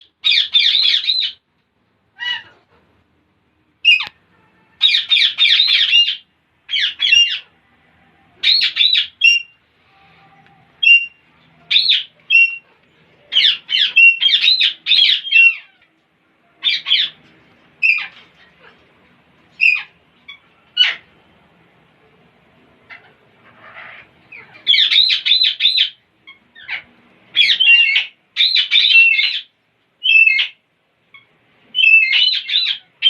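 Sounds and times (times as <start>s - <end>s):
parrots chattering: 0.1s - 1.4s, 2.1s - 3.0s, 4.8s - 7.6s, 8.4s - 9.6s, 10.7s - 16.0s, 16.6s - 21.2s, 22.8s - 33.0s.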